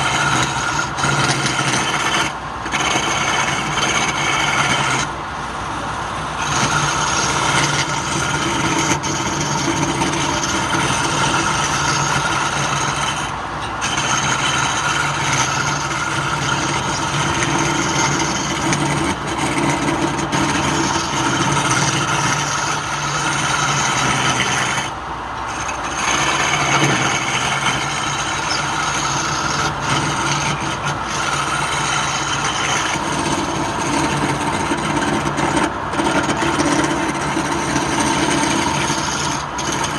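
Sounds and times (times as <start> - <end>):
tool scraping spinning wood: 0.0 - 39.9
wood lathe motor humming: 0.0 - 39.9.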